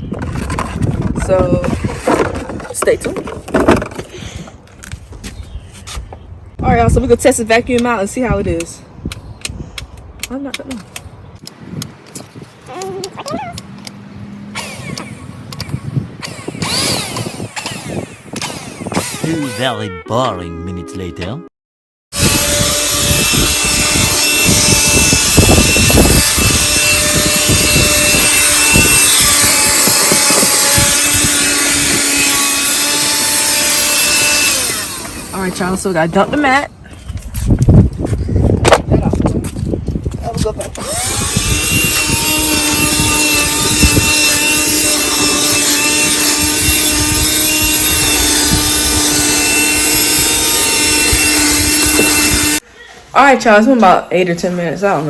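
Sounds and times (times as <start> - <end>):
handheld vacuum cleaner running: 14.6 - 19.5, 22.2 - 35.6, 40.8 - 52.6
vacuum nozzle scraping and bumping: 40.8 - 52.6.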